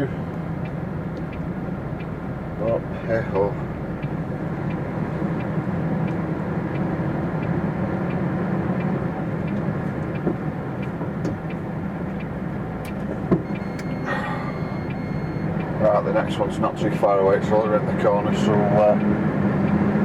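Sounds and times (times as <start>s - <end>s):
truck diesel engine running: 0.0s - 20.0s
faint regular tick: 0.3s - 2.7s, 3.3s - 13.9s.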